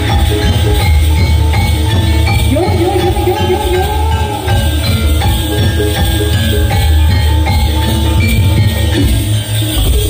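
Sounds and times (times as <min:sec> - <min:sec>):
sliding melodic line: 0:00.0 - 0:10.0
struck metallophones ringing: 0:00.0 - 0:10.0.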